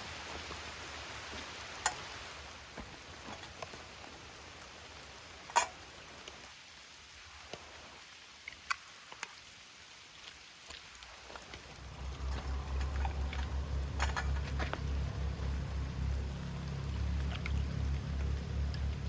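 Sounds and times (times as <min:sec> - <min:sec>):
rain hissing: 0:00.0 - 0:19.0
rain drop taps: 0:10.7 - 0:19.0
low pulsing rumble: 0:11.6 - 0:19.0.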